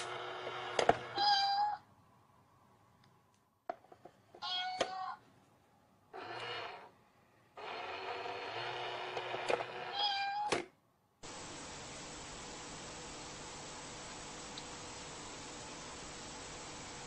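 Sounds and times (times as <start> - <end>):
cat meowing: 1.2 - 1.8, 4.4 - 5.2, 9.9 - 10.5
steady hiss: 11.2 - 17.0.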